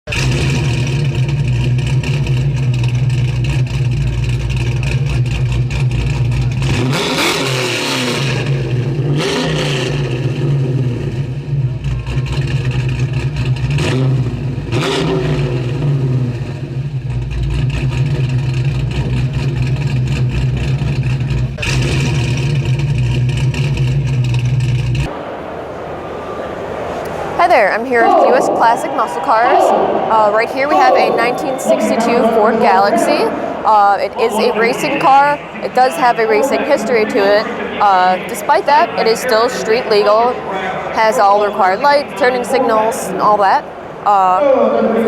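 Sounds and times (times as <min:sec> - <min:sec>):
car engine idling and revving: 0:00.0 - 0:27.4.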